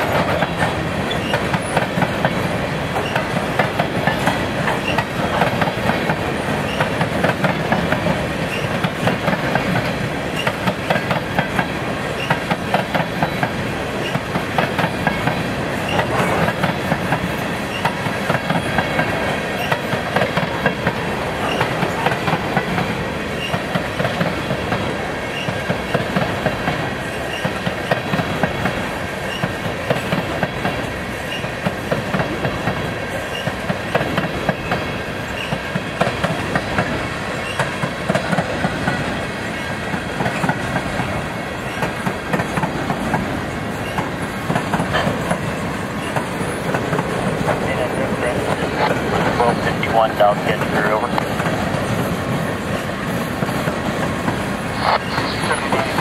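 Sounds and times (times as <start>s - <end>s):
freight train rumble: 0.0s - 56.0s
wheels clacking over rail joints: 0.0s - 56.0s.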